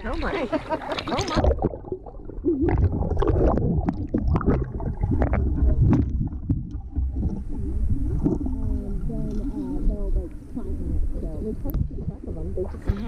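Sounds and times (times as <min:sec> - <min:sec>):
pool water splashing: 0:00.0 - 0:13.0
constant low rumble: 0:03.9 - 0:13.0.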